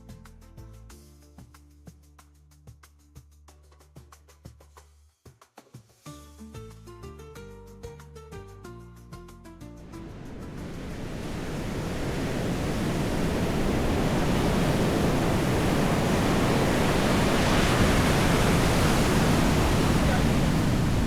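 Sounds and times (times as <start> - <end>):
outdoor rushing noise: 9.8 - 21.0.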